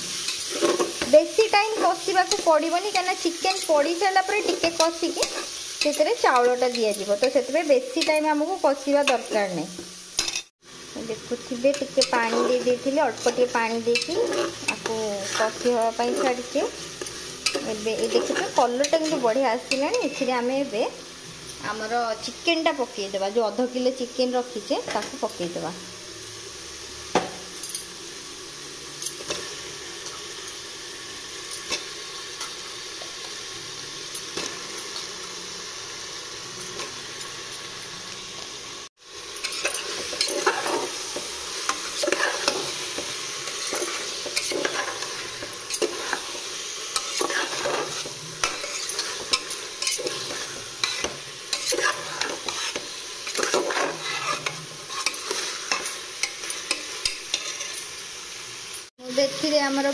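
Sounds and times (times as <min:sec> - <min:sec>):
chicken frying: 0:00.0 - 0:59.9
masala sizzling in pot: 0:00.0 - 0:59.9
metal spoon scraping pot: 0:12.0 - 0:20.3, 0:47.0 - 0:56.4, 0:57.0 - 0:57.9.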